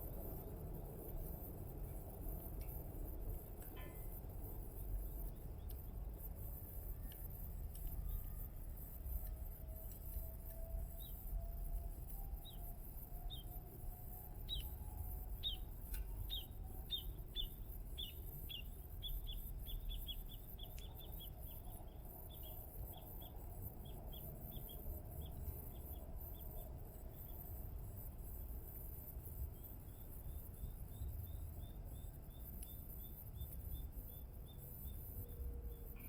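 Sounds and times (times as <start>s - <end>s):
bird chirping: 12.3s - 13.6s, 14.2s - 27.4s.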